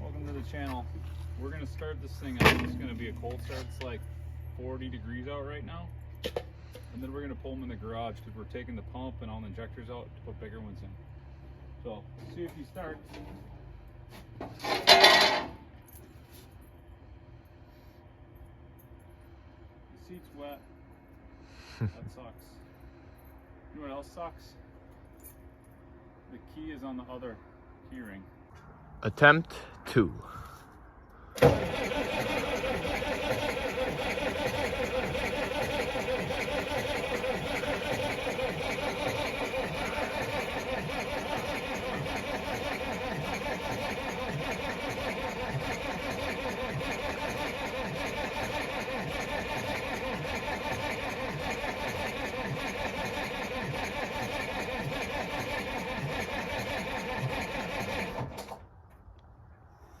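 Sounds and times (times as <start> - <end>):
starter motor cranking diesel engine: 0.0 - 15.5, 31.2 - 58.6.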